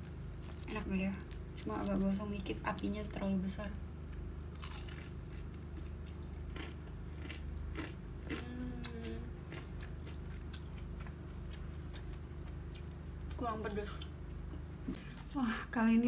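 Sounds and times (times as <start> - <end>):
person biting and chewing: 4.6 - 12.1.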